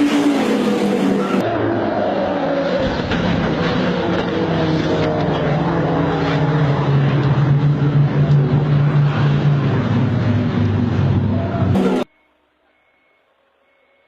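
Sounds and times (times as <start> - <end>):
road noise: 0.0 - 13.8
vehicle engine running: 3.0 - 12.1.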